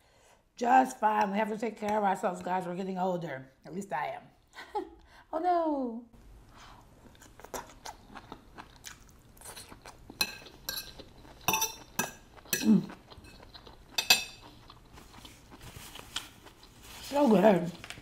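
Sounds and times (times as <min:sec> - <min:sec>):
chewing crunchy vegetables: 0:06.8 - 0:18.0.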